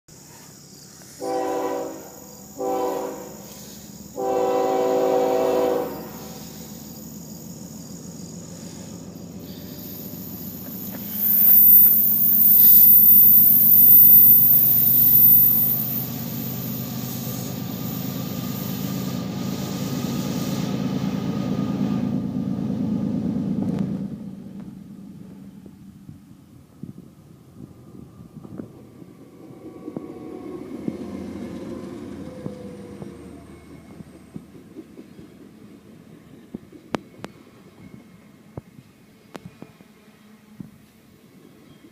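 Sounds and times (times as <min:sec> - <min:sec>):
train passing: 0:00.2 - 0:41.9
locomotive air horn blasts: 0:01.2 - 0:06.4
freight cars rumbling: 0:03.2 - 0:38.0
wheel squeal: 0:06.1 - 0:20.5.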